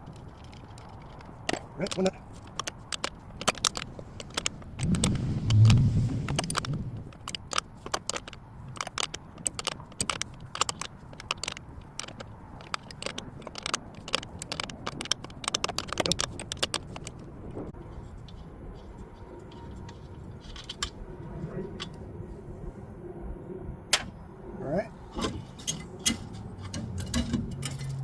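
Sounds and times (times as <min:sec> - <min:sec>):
short low rumble: 0:04.8 - 0:07.2
metal wrenches clinking: 0:25.1 - 0:28.0.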